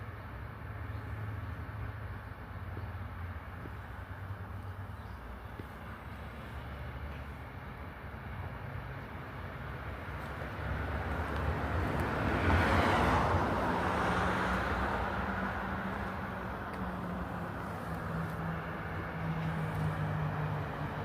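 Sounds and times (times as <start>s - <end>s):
vehicle passing close by: 9.8s - 21.0s
steady low engine hum: 13.2s - 21.0s.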